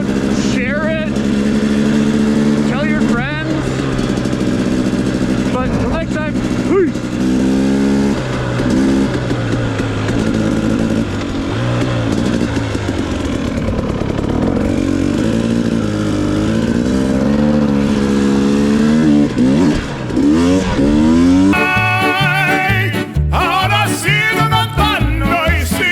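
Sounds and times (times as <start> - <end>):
dirt bike engine revving: 0.0 - 23.3
music: 21.6 - 25.9.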